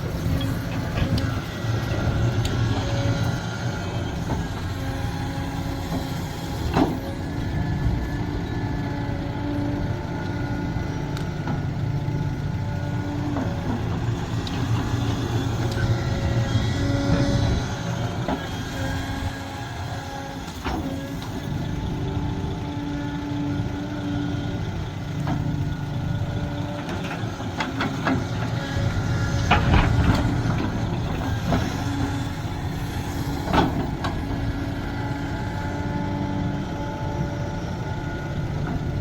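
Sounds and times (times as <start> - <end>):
diesel engine running: 0.0 - 39.0
hydraulic whine: 0.0 - 39.0.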